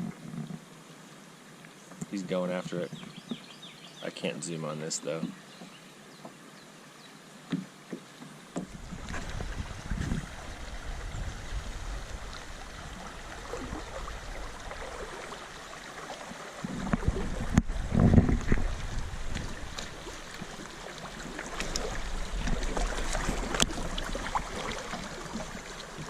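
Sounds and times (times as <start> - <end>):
water sloshing around a kayak: 7.5 - 26.0
wind buffeting microphone: 8.7 - 15.2, 16.6 - 20.5.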